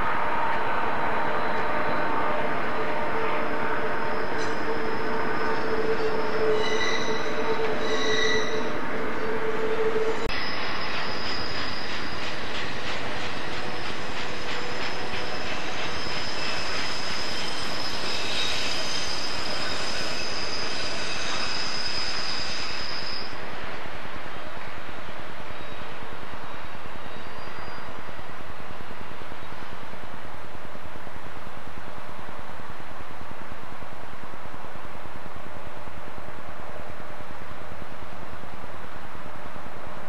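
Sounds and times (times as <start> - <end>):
train wheels squealing on rail: 1.3 - 23.9, 25.5 - 28.4.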